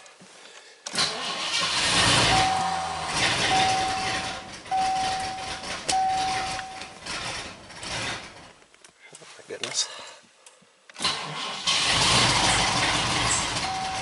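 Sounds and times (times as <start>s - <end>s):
car engine cranking: 0.9s - 8.6s, 10.9s - 14.0s
steady high-pitched beeping: 3.5s - 7.0s.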